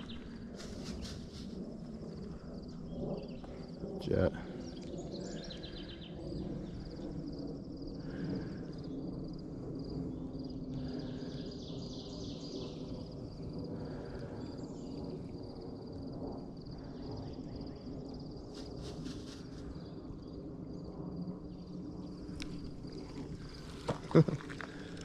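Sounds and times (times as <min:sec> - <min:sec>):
birds calling and chirping: 0:00.0 - 0:01.5, 0:02.8 - 0:07.0.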